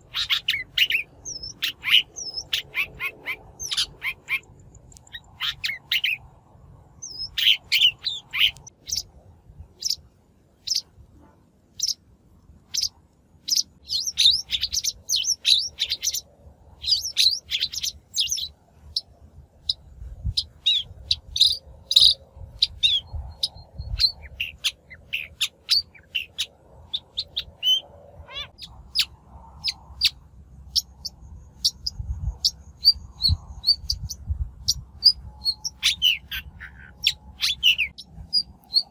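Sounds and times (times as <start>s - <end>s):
bird trill: 0.0s - 6.2s, 7.0s - 9.1s, 10.6s - 10.9s, 11.8s - 12.0s, 12.7s - 38.9s.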